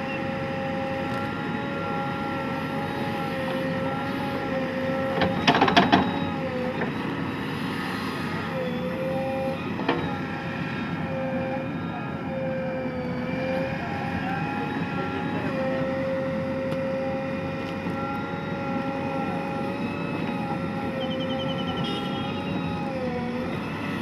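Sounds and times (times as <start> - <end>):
diesel engine running: 0.0 - 24.0
wavering whine: 8.4 - 24.0.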